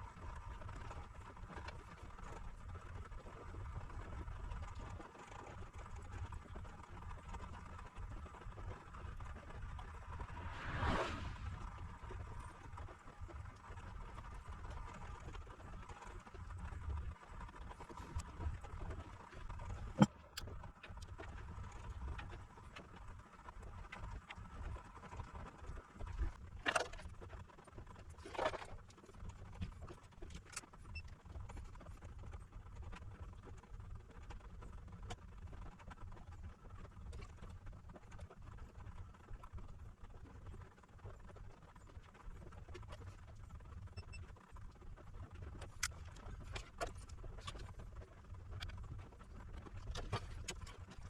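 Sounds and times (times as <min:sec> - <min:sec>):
low handling rumble: 0:09.7 - 0:12.2.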